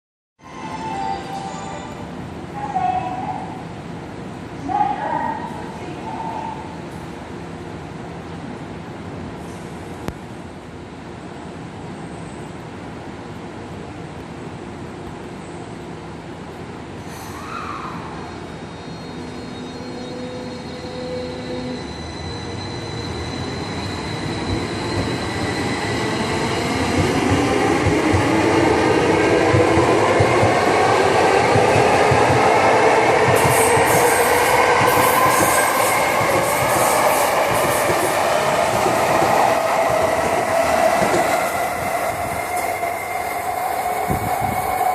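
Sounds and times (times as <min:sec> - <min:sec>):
wheels rumbling on rail: 0:22.2 - 0:44.9.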